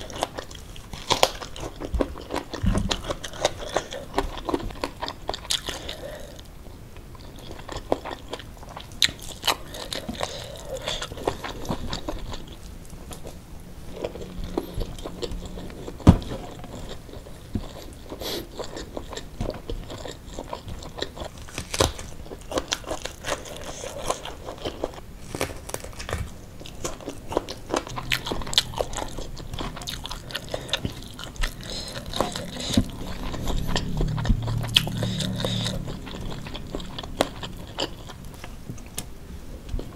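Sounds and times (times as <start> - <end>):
chewing with crunches: 0.0 - 39.9.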